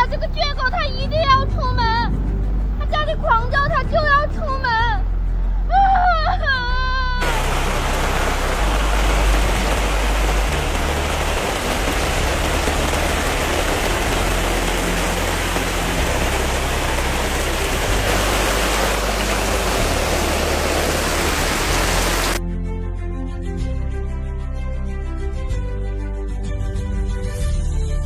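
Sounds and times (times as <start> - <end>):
torrential rain hiss: 7.0 - 22.4.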